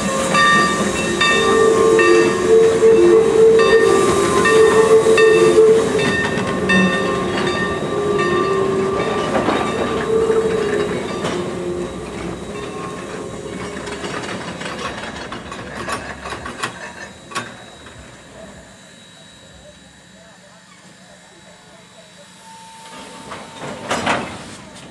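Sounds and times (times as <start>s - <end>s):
steady ringing tones: 0.0s - 24.4s
steam train rolling past: 0.0s - 24.9s
wheels clicking over rail joints: 6.0s - 18.0s.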